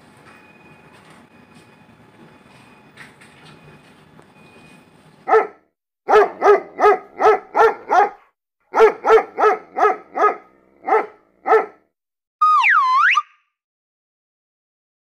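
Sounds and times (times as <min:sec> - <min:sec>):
dog barking: 0:05.3 - 0:11.9.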